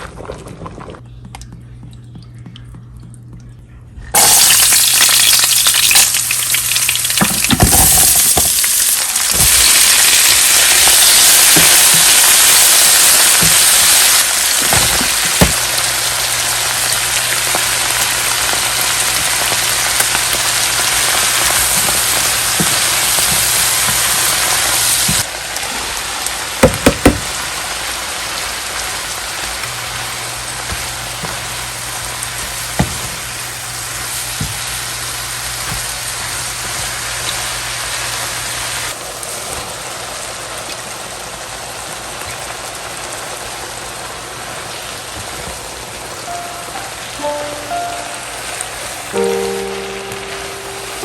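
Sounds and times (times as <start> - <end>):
food sizzling in hot oil: 4.2 - 51.0
utensil knocking against pan: 26.6 - 27.3.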